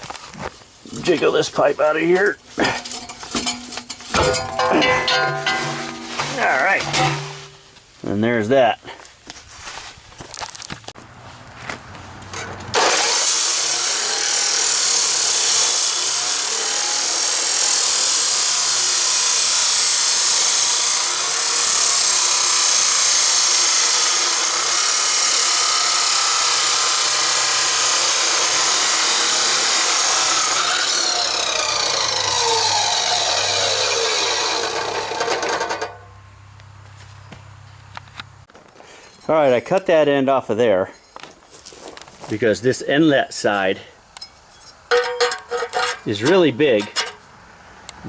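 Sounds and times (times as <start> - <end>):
power tool cutting steel pipe: 2.7 - 7.6, 12.7 - 36.0, 44.9 - 47.2
handling knocks: 2.9 - 7.6.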